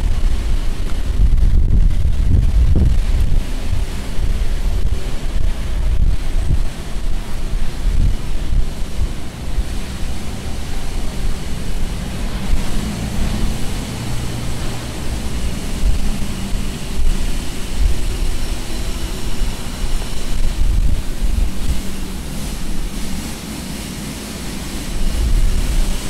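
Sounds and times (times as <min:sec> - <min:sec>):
low street rumble: 0:00.0 - 0:26.0
wind buffeting the microphone: 0:00.0 - 0:26.0.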